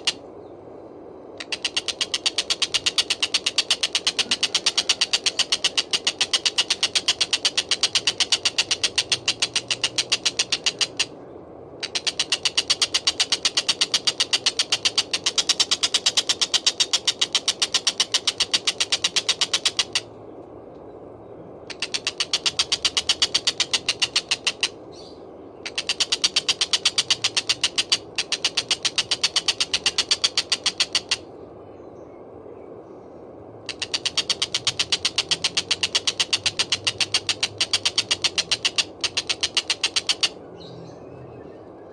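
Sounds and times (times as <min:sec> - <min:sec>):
faint steady hiss: 0:00.0 - 0:41.9
kingfisher calling: 0:01.4 - 0:11.1, 0:11.8 - 0:20.1, 0:21.7 - 0:24.8, 0:25.6 - 0:31.3, 0:33.7 - 0:40.4.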